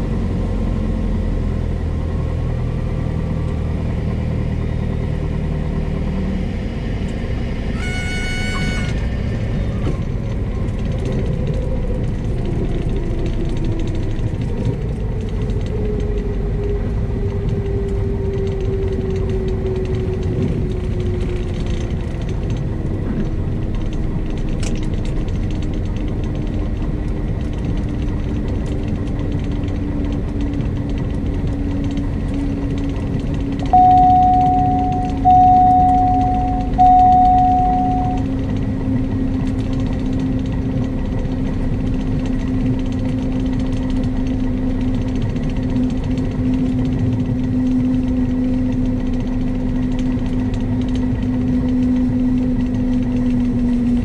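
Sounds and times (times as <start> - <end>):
light aircraft engine and propeller: 0.0 - 54.0
stall warning horn: 7.6 - 10.0, 33.8 - 38.4
tone falling in pitch: 33.8 - 38.4.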